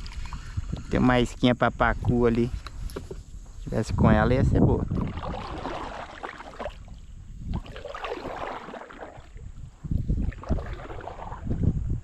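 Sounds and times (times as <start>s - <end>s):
paddle splashes: 0.0s - 0.6s, 4.9s - 11.7s
wind rumbling on microphone: 0.0s - 12.0s.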